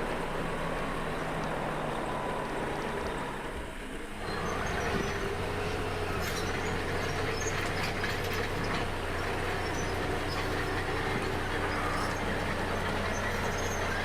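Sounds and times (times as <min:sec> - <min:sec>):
bulldozer diesel engine running: 0:00.0 - 0:14.0
crawler tracks clanking and squeaking: 0:04.2 - 0:14.0.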